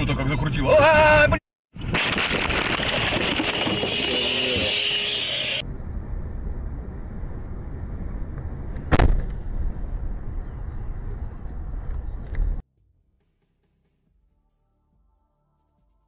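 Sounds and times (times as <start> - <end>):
road and engine rumble: 1.7 - 12.7.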